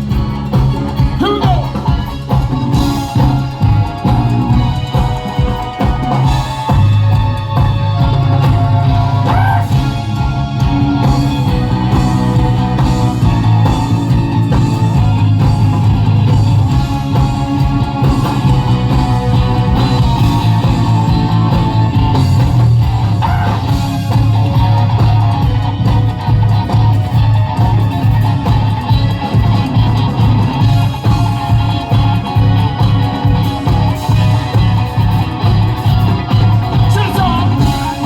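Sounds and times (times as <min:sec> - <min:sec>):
funk band playing: 0:00.0 - 0:38.0
steady bass line: 0:00.0 - 0:38.0.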